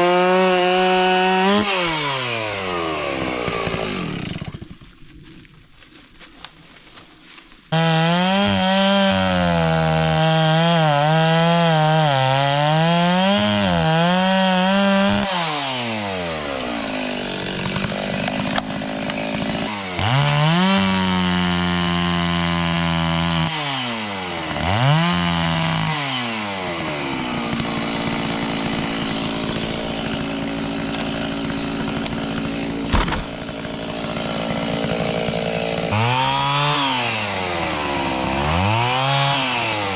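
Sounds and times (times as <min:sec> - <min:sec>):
chainsaw cutting wood: 0:00.0 - 0:05.6, 0:07.2 - 0:39.9.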